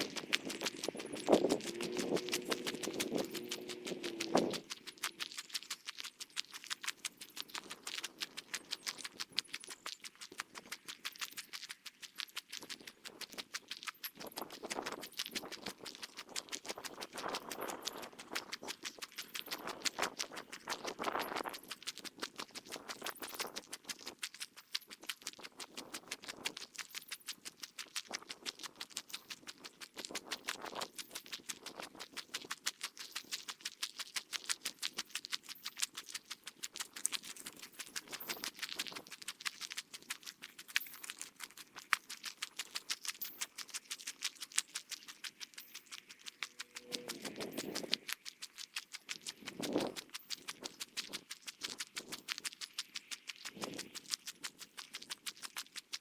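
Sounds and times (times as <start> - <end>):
fast footsteps on trail: 0.0 - 11.9, 12.6 - 24.2, 36.6 - 39.3, 45.0 - 55.0.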